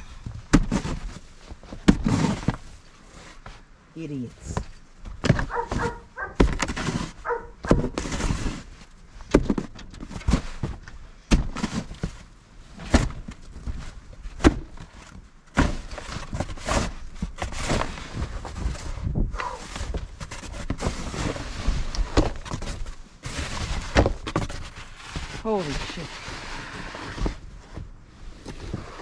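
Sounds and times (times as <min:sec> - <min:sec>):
snow shovel scraping: 0:01.9 - 0:02.6, 0:06.7 - 0:08.7, 0:24.9 - 0:27.4.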